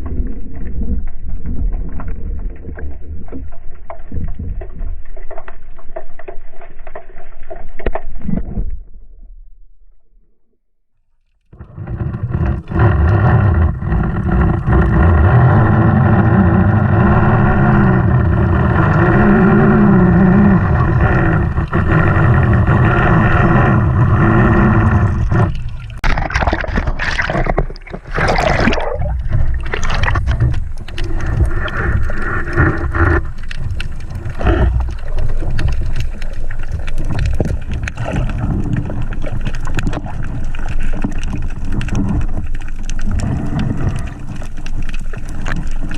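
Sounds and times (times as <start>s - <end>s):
water splashing: 11.5s - 45.9s
boat engine running: 11.6s - 35.8s.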